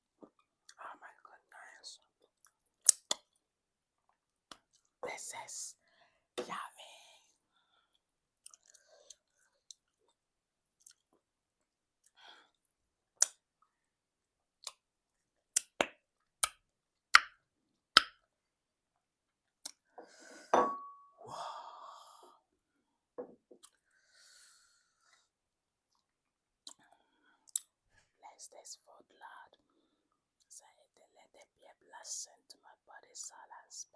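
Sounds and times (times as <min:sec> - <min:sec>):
lip smacks: 0:15.6 - 0:16.6.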